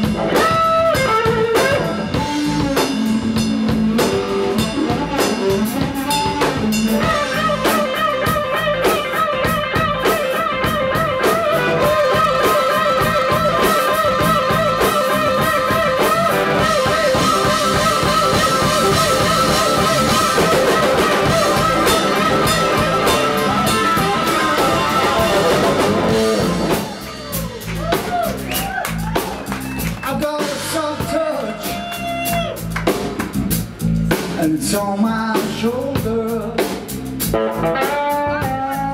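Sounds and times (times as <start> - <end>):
electric guitar with vibrato: 0.0 - 27.4
bass: 0.0 - 38.9
drum kit: 0.0 - 38.9.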